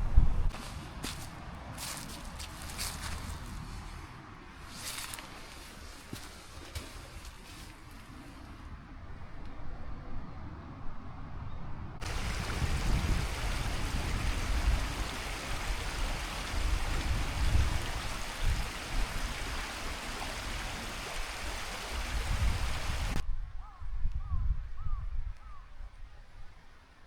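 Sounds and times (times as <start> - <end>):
stream water rushing: 12.0 - 23.2.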